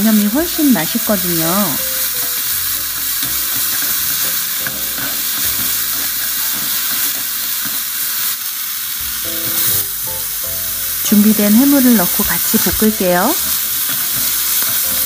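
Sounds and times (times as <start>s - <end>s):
food sizzling in hot oil: 0.0s - 15.0s
wooden spatula stirring: 3.0s - 7.8s.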